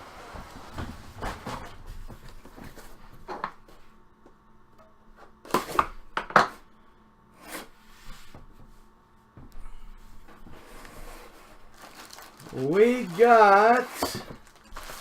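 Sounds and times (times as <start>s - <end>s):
packaging crinkling and rustling: 11.3s - 15.0s.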